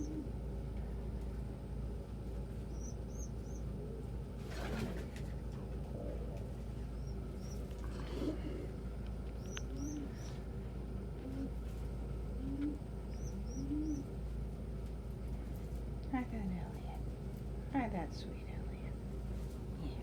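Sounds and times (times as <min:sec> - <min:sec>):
pigeons cooing softly: 0:00.0 - 0:15.8
wings rustling: 0:04.4 - 0:05.4.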